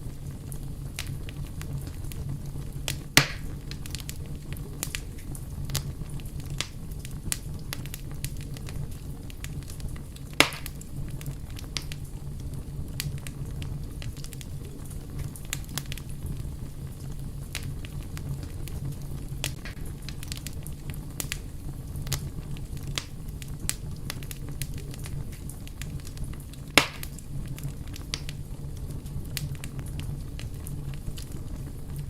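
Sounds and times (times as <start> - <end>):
fire crackling: 0.0 - 32.0
fire low rumble: 0.0 - 32.0
loud pops: 3.2 - 3.5, 10.4 - 10.8, 26.8 - 27.2.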